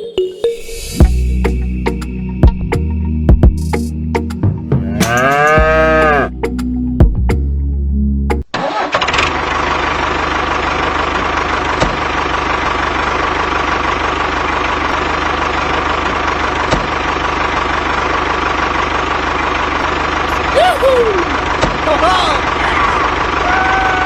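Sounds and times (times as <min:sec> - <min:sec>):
engine chugging evenly: 0:09.1 - 0:24.0.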